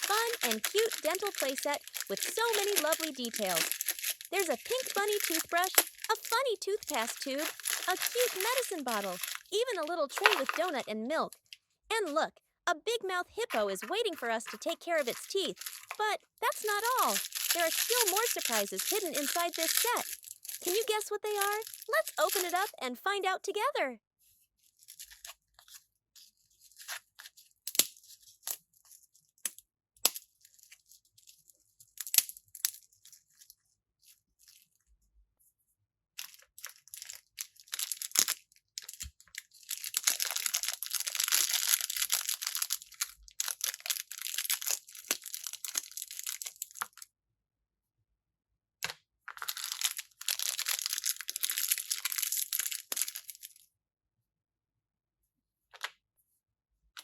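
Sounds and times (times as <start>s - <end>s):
packaging clicks and rustles: 0.0s - 11.6s, 13.5s - 22.8s, 36.2s - 47.0s, 49.3s - 53.6s
wrapping crinkling and tearing: 0.0s - 12.2s, 13.1s - 23.2s, 24.6s - 34.8s, 36.2s - 47.0s, 49.3s - 53.6s.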